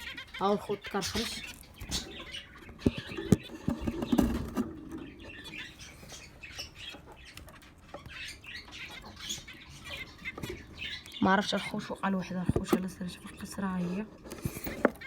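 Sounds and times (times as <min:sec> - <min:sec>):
birds scratching and rustling: 0:00.0 - 0:15.0
budgerigars chirping softly: 0:00.0 - 0:15.0.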